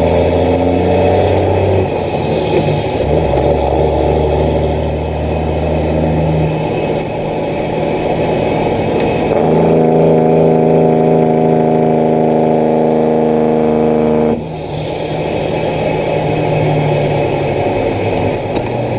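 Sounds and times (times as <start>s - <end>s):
diesel truck engine running: 0.0s - 18.9s
engine brake drone: 0.0s - 18.9s.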